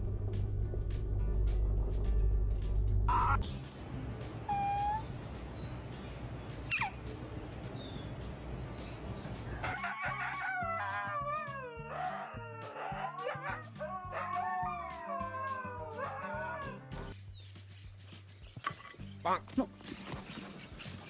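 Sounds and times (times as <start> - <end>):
background music with bass line: 0.0 - 21.0
dog howling: 11.1 - 16.9.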